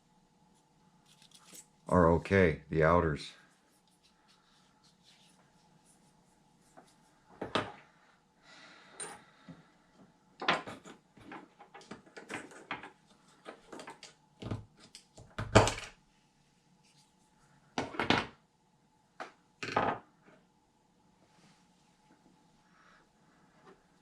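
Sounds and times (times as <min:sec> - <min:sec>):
small parts and tools clicking: 0:01.0 - 0:01.7.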